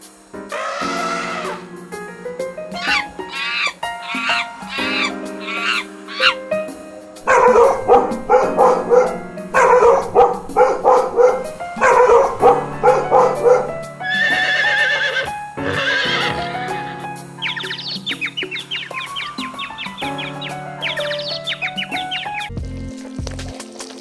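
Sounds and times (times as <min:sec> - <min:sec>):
background music: 0:00.0 - 0:24.0
horse whinnying: 0:00.5 - 0:01.6, 0:02.8 - 0:06.4, 0:14.0 - 0:16.9.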